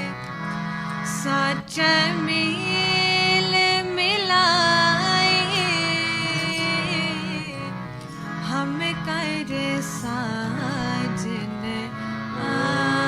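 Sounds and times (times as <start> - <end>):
steady drone: 0.1 - 13.0.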